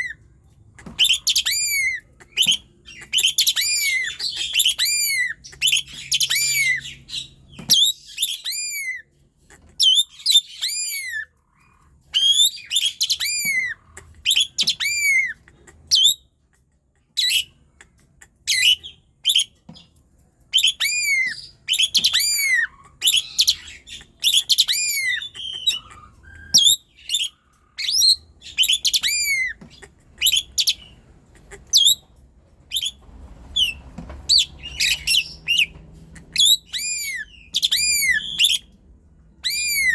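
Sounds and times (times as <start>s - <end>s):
starling singing whistled notes: 1.0s - 9.0s, 12.1s - 13.7s, 18.5s - 19.6s, 20.5s - 29.6s, 31.8s - 32.0s, 32.7s - 35.7s, 36.3s - 38.8s, 39.4s - 39.9s.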